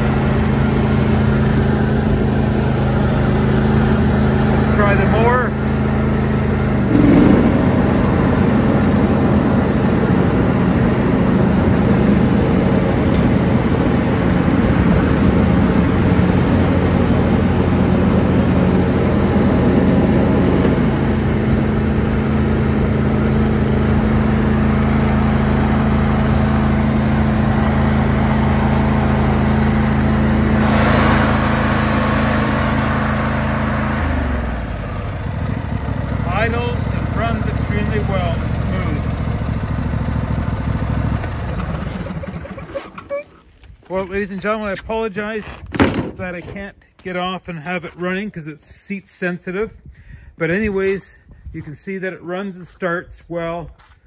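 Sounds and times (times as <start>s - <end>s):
lawn tractor engine running: 0.0s - 44.4s.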